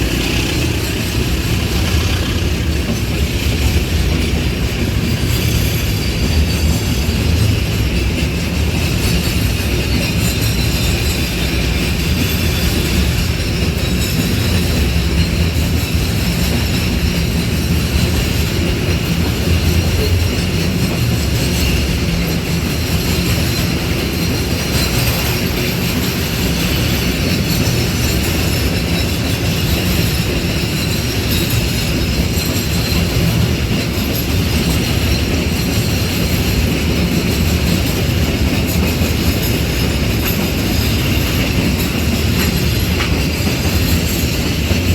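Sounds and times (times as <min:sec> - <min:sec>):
high wheel squeal: 0:00.0 - 0:04.4
train wagons rumbling on rails: 0:00.0 - 0:44.9.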